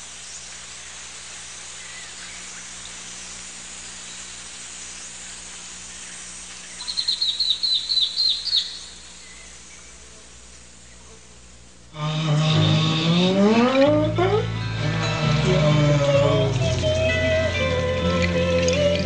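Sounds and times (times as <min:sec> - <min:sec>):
forest hiss: 0:00.0 - 0:19.0
bird singing rapid notes: 0:05.9 - 0:10.0.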